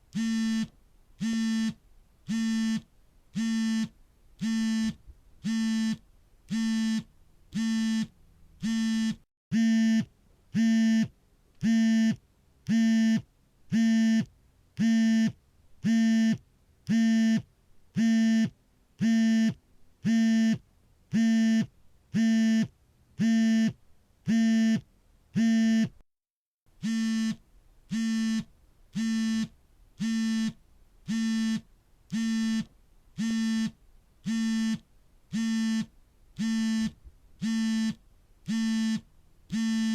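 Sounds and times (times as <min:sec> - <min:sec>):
phone vibrating in pulses: 0:00.2 - 0:12.2, 0:26.8 - 0:34.8, 0:35.4 - 0:39.9.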